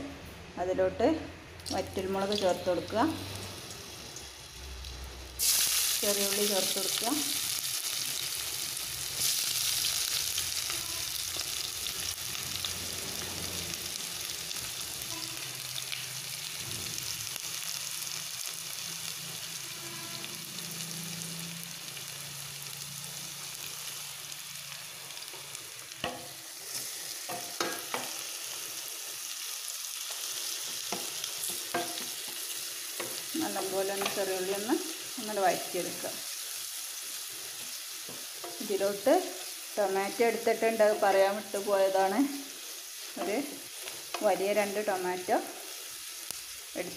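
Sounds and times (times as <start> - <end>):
shallots sizzling in hot oil: 1.6 - 46.9.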